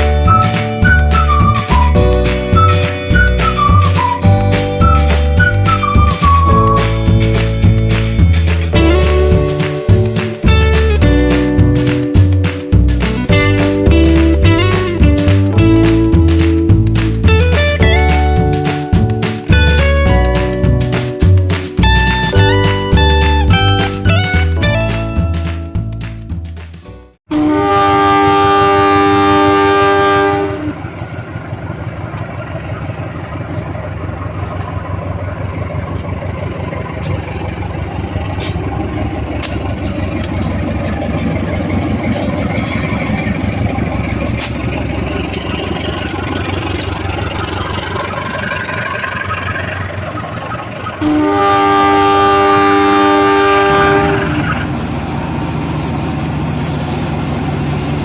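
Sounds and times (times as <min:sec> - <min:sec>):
toy train horn: 0:27.3 - 0:30.8, 0:42.5 - 0:43.5, 0:51.0 - 0:54.7.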